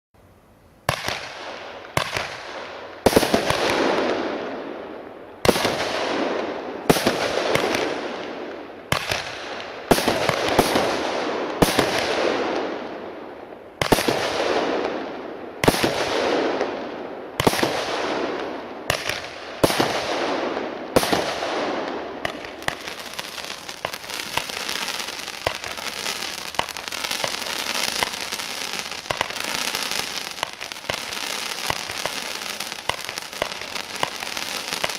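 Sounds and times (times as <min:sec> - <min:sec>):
firework bangs: 0:00.9 - 0:04.6, 0:05.4 - 0:13.0, 0:13.8 - 0:34.9
firework crackling: 0:00.9 - 0:34.9.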